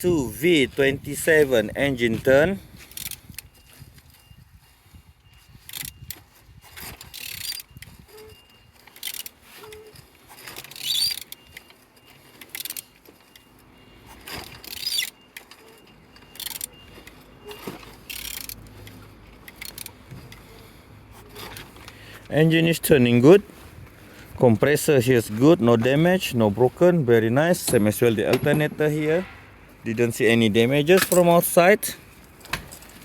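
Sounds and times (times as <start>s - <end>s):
engine turned over by hand clicking: 14.1s - 22.4s.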